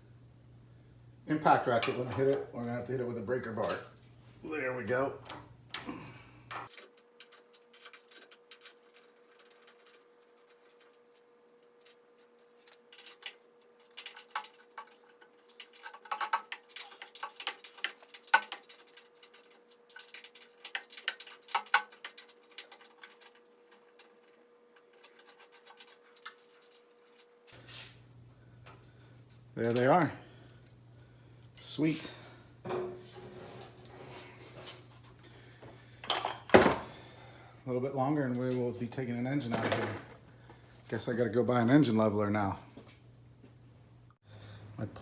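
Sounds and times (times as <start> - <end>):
faint hum: 0.0 - 6.7, 26.7 - 45.0.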